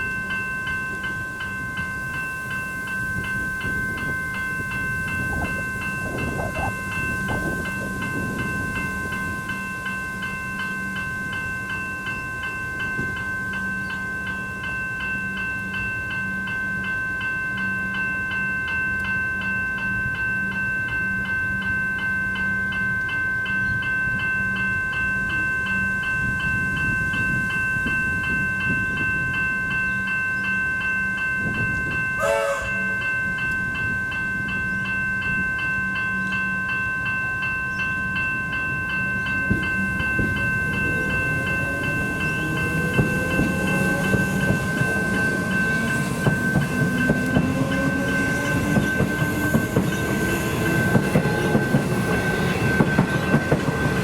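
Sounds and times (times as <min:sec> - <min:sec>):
level crossing bells ringing: 0:00.0 - 0:54.0
train motor whine: 0:39.3 - 0:54.0
wheels clacking over rail joints: 0:39.4 - 0:54.0.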